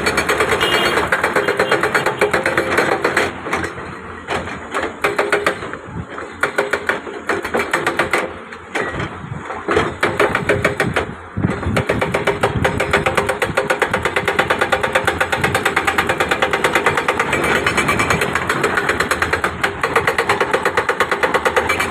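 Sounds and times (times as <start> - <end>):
rapid mechanical hammering: 0.0 - 9.0, 9.7 - 21.9.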